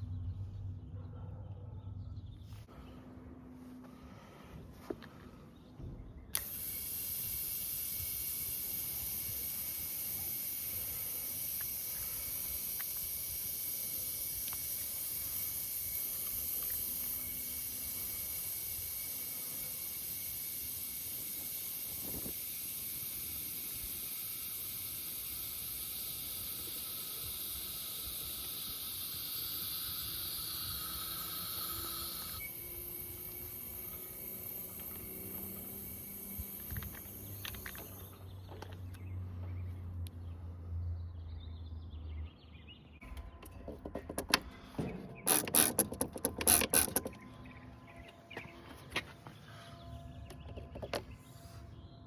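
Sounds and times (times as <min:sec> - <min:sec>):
gas hissing: 0:06.3 - 0:38.8.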